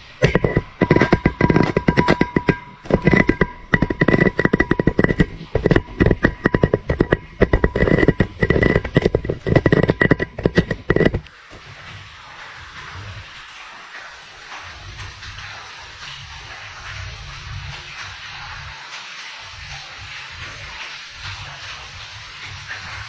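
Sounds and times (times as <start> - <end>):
camera clattering inside a pipe: 0.0 - 11.3
steady ringing tone: 0.0 - 11.3.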